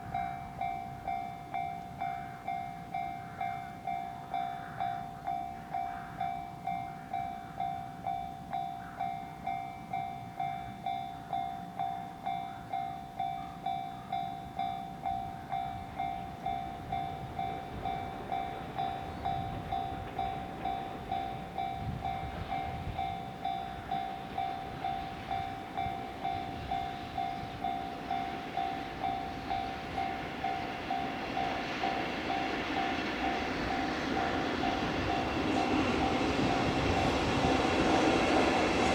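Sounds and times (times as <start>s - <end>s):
level crossing warning bell: 0.0s - 38.9s
freight train rumble: 9.3s - 38.9s.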